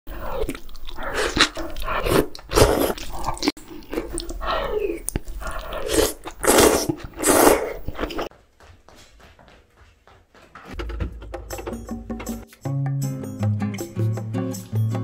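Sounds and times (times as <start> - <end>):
chewing noodles: 0.1 - 8.3
noodle slurping: 0.1 - 8.3.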